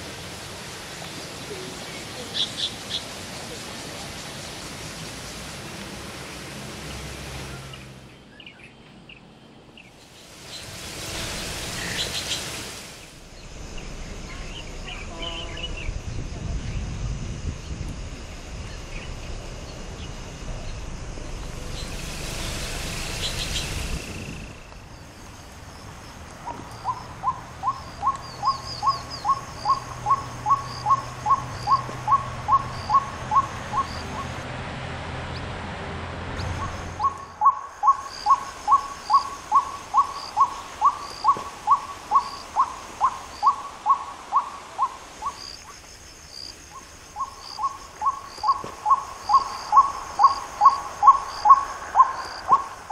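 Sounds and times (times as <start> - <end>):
rushing noise: 9.9 - 52.9
bird hooting: 26.5 - 34.3, 36.6 - 45.5, 47.2 - 52.9
faint high chirp: 47.2 - 52.7.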